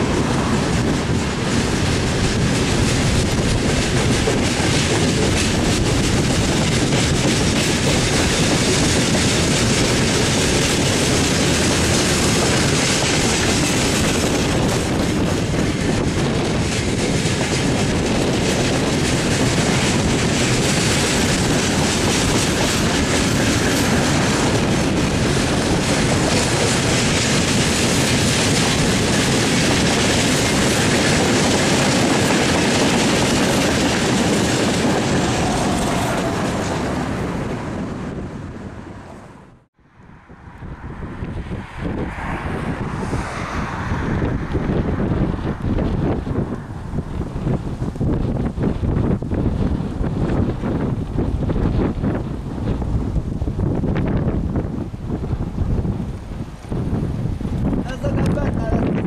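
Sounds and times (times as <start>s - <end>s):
train wheels clattering over rails: 0.0s - 38.7s.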